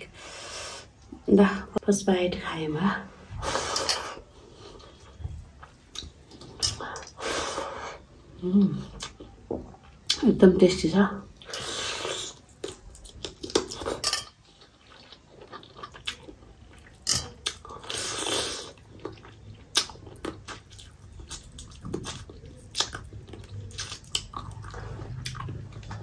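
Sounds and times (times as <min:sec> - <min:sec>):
chewing with lip smacks: 0:12.2 - 0:26.0.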